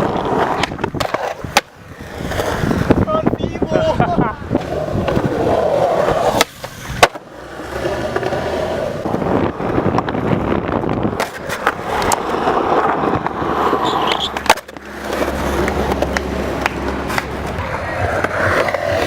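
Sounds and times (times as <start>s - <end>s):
skateboard knocking on ground: 0.0s - 1.8s, 6.0s - 7.3s, 9.8s - 12.3s, 13.0s - 19.0s
skateboard clacking on ground: 0.0s - 3.1s, 4.5s - 19.0s
skateboard wheels rolling: 0.0s - 19.0s.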